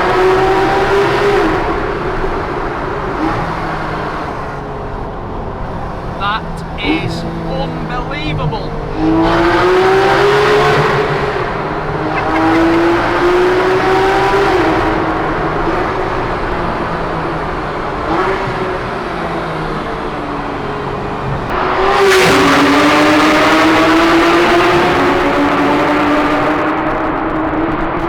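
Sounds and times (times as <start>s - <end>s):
car engine accelerating hard: 0.0s - 6.6s, 8.8s - 28.0s.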